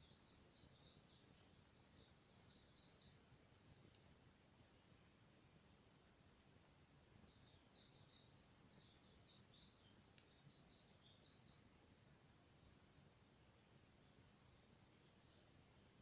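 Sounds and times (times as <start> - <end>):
small bird twittering: 0.0 - 3.7, 7.2 - 11.6.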